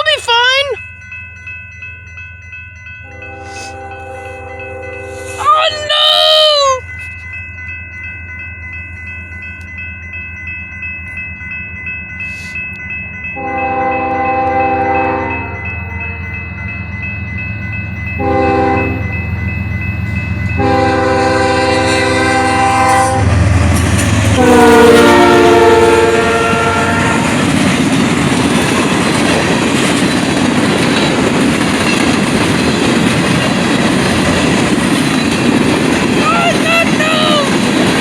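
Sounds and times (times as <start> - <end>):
train cars rumbling past: 0.1 - 38.0
locomotive horn blasts: 3.0 - 5.4, 13.4 - 16.2, 18.2 - 19.1, 20.6 - 23.4, 24.3 - 27.4
train wheel clatter: 23.2 - 24.8, 26.4 - 38.0.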